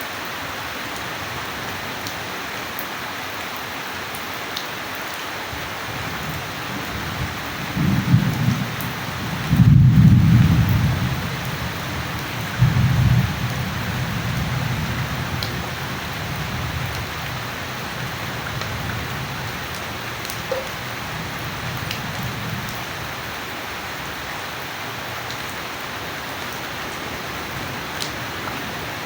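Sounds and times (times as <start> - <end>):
steady rain falling: 0.0 - 29.0
low rumble of thunder: 6.1 - 23.1
sharp drip ticks: 20.2 - 20.9.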